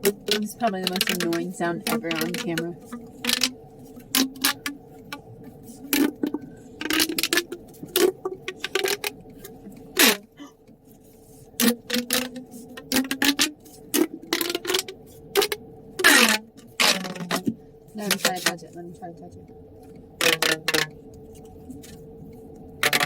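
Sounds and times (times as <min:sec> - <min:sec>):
sharp clicks and clacks: 0:00.0 - 0:03.5
steady low hum: 0:00.0 - 0:23.0.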